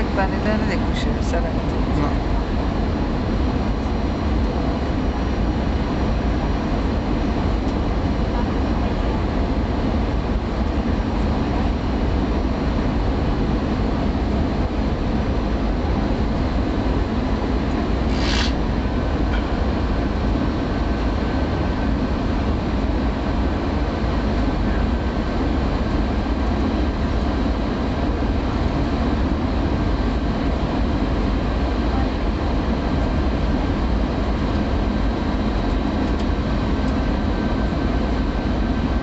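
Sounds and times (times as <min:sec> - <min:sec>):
jet engine and airflow rumble: 0:00.0 - 0:39.0
brief hiss: 0:18.1 - 0:18.6.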